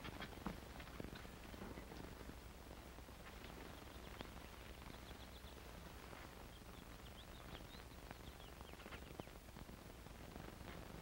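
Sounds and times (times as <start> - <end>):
low hum and hiss: 0.0 - 11.0
faint high bird chirps: 3.6 - 5.6, 6.5 - 9.4.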